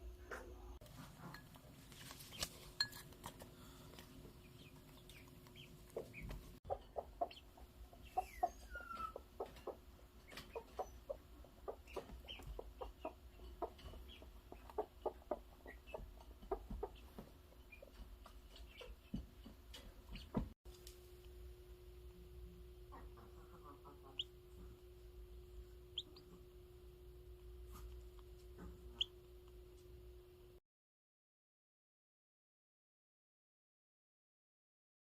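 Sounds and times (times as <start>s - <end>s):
hen clucking softly: 4.6s - 19.1s, 22.8s - 24.8s
faint steady hum: 20.7s - 30.6s.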